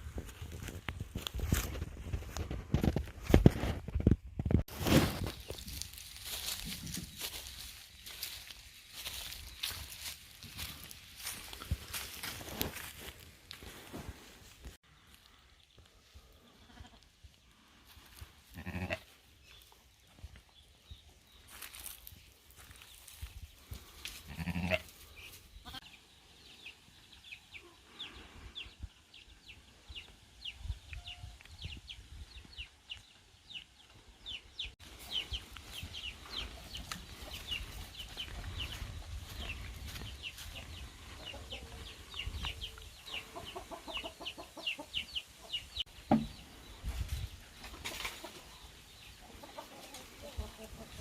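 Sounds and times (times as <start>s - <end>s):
poultry peeping: 4.8s - 13.2s, 19.4s - 51.0s
farm animals calling: 16.2s - 19.2s, 23.8s - 26.0s, 35.0s - 45.8s.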